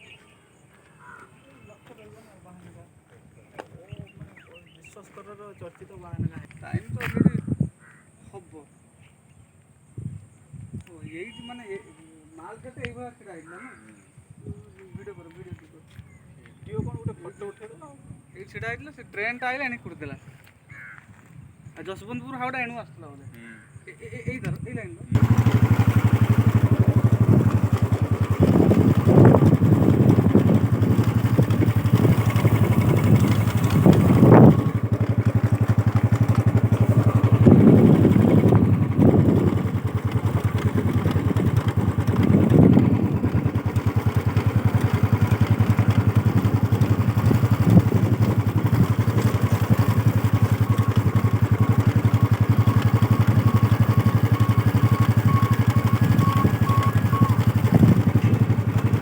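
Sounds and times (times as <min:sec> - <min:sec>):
engine throbbing: 0:25.2 - 0:59.0.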